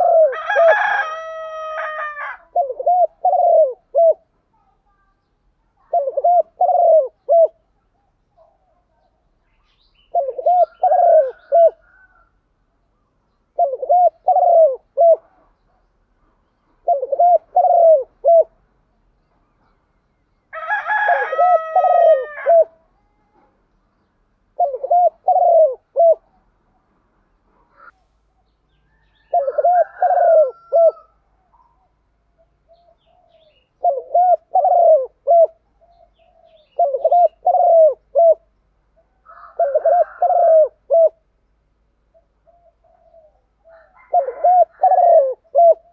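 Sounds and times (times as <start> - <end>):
dove cooing: 0.0 - 4.4, 5.8 - 9.0, 10.0 - 12.4, 13.5 - 15.8, 16.7 - 18.6, 20.6 - 23.5, 24.5 - 26.5, 29.0 - 41.3, 42.1 - 45.9.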